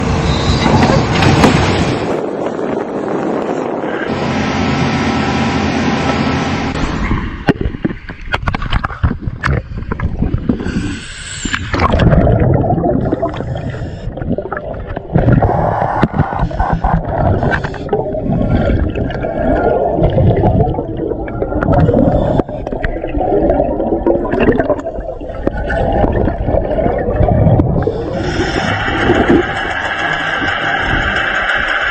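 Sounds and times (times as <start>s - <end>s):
underwater bubbles gurgling: 7.4s - 31.9s.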